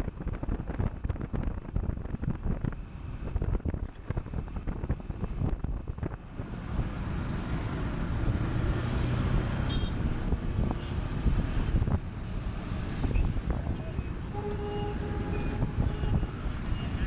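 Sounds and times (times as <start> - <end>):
low engine hum: 0.0 - 17.0
wind buffeting microphone: 0.0 - 17.0.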